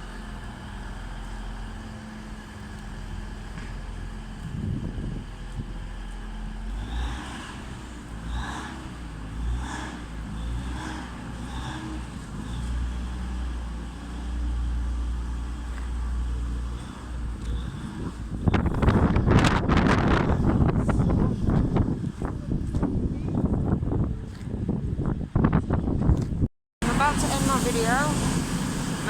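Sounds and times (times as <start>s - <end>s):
train diesel engines rumbling: 0.0s - 19.3s, 26.8s - 29.0s
wind buffeting microphone: 4.0s - 9.6s, 16.6s - 29.0s.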